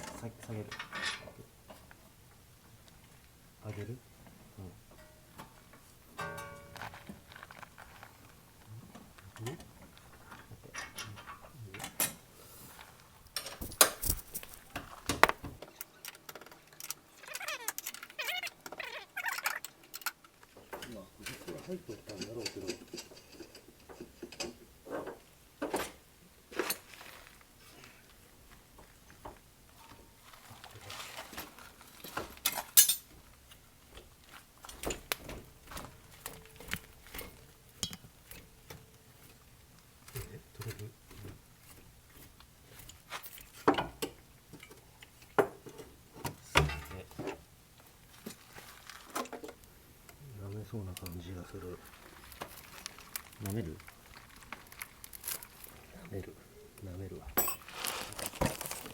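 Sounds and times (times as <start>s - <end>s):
metal tools clinking and knocking: 0.0s - 1.4s, 4.9s - 7.5s, 9.4s - 12.3s, 13.3s - 18.1s, 20.7s - 25.1s, 32.0s - 33.2s, 57.3s - 58.9s.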